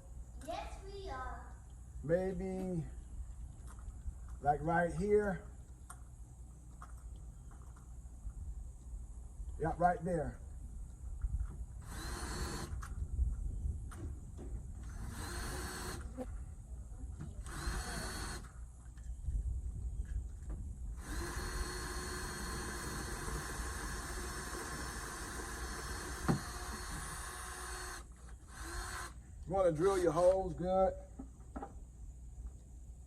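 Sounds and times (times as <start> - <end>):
power drill whining: 11.8 - 12.9, 14.8 - 16.2, 17.4 - 18.5, 21.0 - 29.2.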